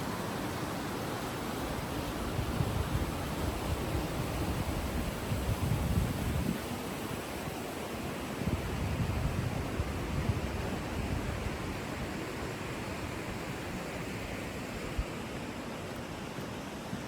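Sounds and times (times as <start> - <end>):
stream water rushing: 0.0 - 17.0
wind buffeting microphone: 2.3 - 6.8, 8.4 - 12.1.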